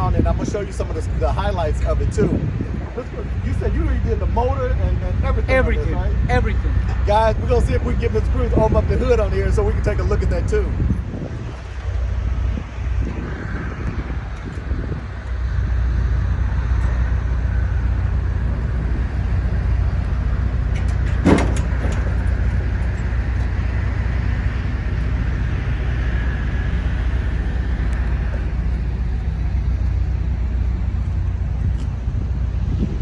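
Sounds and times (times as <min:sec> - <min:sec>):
engine idling: 0:00.0 - 0:12.5, 0:14.2 - 0:33.0
sharp clunk: 0:17.7 - 0:23.8.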